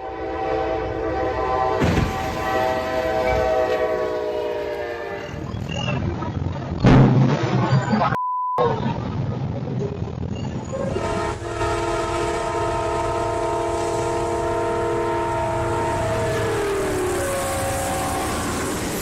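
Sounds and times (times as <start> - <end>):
locomotive horn chord: 0.0 - 5.4, 10.9 - 18.8
train approaching: 0.0 - 6.0, 10.6 - 19.0
high beep: 7.6 - 8.7.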